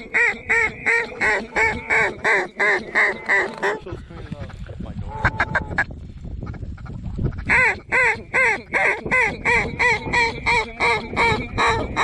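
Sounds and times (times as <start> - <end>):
duck call quacks: 7.4 - 12.0.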